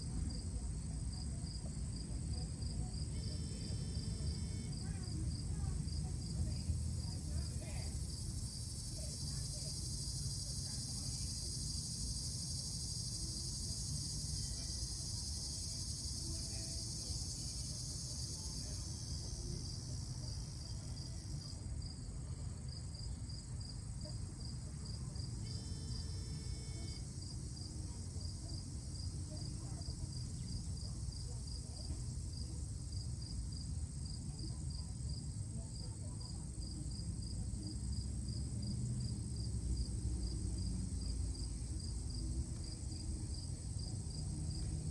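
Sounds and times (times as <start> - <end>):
insect chirps: 2.6 - 21.9, 24.4 - 31.3.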